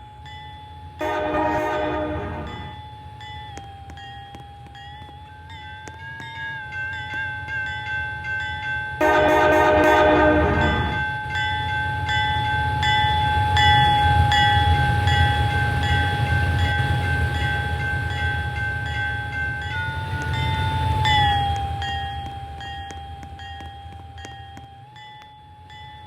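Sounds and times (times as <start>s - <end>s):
freight train rumbling: 0.0s - 4.6s, 5.2s - 26.0s
bell ringing: 1.0s - 2.8s, 8.5s - 13.8s.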